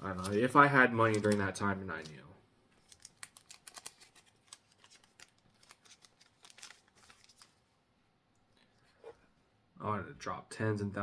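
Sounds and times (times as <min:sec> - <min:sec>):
trading cards clicking and rustling: 0:00.0 - 0:02.2, 0:02.8 - 0:07.6.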